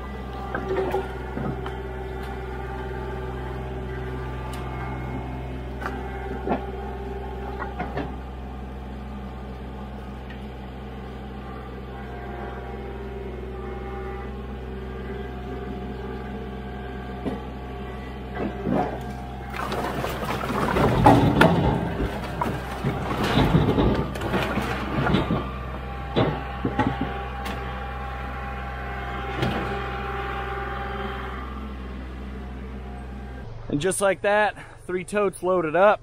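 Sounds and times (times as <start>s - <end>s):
engine running steadily: 0.0s - 36.0s
firewood clattering: 18.7s - 27.2s
firewood pieces landing: 19.5s - 25.5s.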